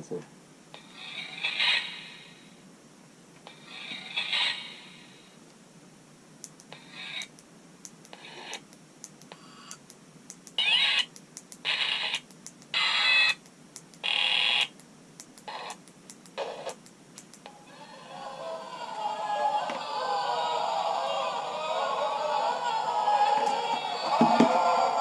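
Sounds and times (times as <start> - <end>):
small clicks: 6.4 - 17.5
spooky sound effects snippets: 17.6 - 25.0.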